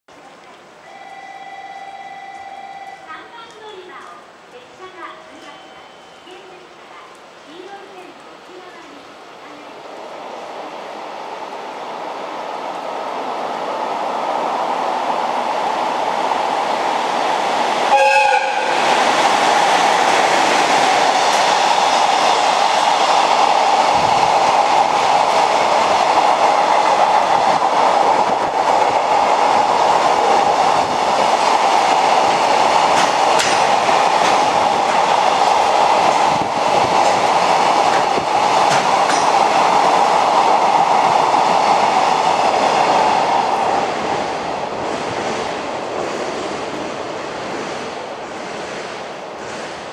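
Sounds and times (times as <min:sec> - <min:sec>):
train wheels rumbling and clattering: 0:09.8 - 0:49.9
locomotive horn: 0:17.9 - 0:18.8.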